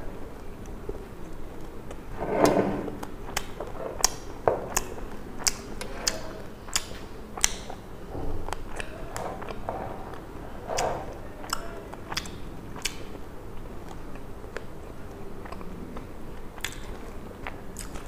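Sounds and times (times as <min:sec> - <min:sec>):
chewing with wet mouth clicks: 0:03.0 - 0:07.8, 0:08.5 - 0:09.6, 0:10.8 - 0:13.2, 0:13.8 - 0:18.0.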